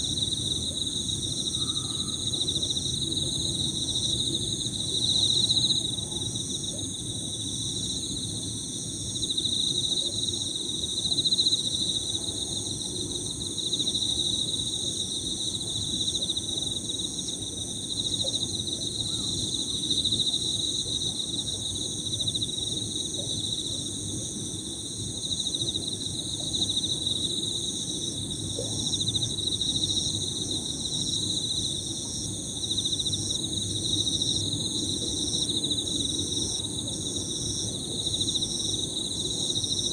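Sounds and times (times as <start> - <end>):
high-pitched insect chorus: 0.0 - 23.9
crickets trilling: 0.0 - 39.9.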